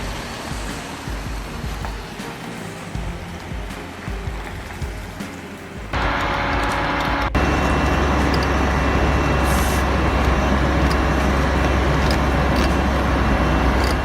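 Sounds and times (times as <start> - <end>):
heavy vehicle engine rumbling: 5.8 - 14.0.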